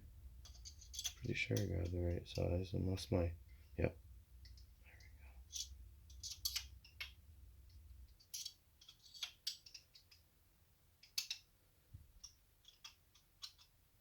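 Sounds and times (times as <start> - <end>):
hex wrench clicking on screws: 5.5 - 7.2, 8.1 - 10.2, 11.0 - 11.5, 12.2 - 13.8.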